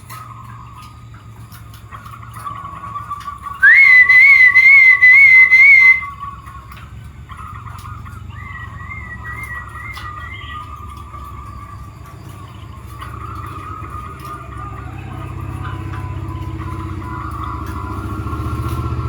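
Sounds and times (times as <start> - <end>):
doves cooing: 0.0 - 6.5, 7.3 - 19.0
wavering whistle: 3.6 - 6.2, 8.4 - 10.7.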